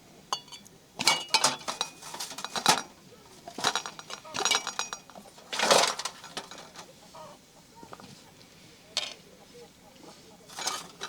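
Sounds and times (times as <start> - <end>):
utensils clinking against dishes: 0.3 - 6.9, 9.0 - 9.2, 10.5 - 11.0.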